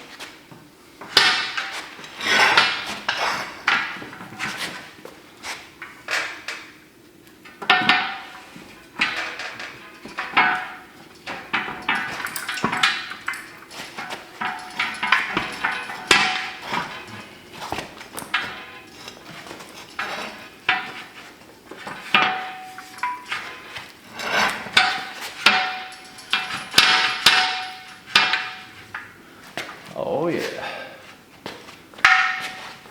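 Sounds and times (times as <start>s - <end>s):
metal clanks with ringing: 7.6s - 21.2s, 21.8s - 29.2s, 32.0s - 32.8s.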